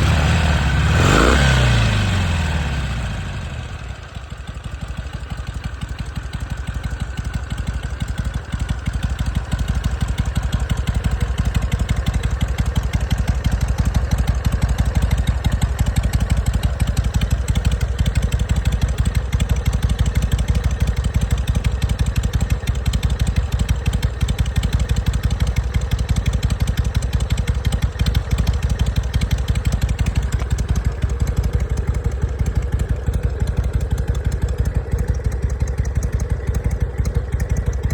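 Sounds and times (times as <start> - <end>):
motorcycle engine idling: 0.0 - 37.9.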